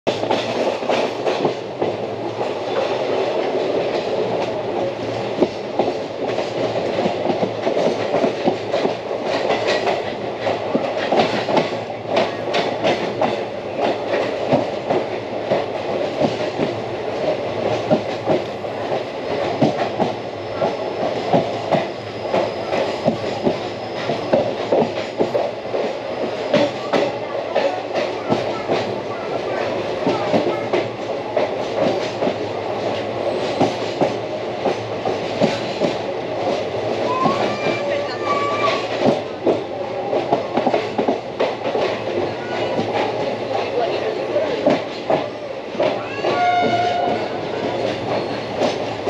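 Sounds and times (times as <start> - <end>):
train wheels rumbling on rails: 0.1 - 49.0.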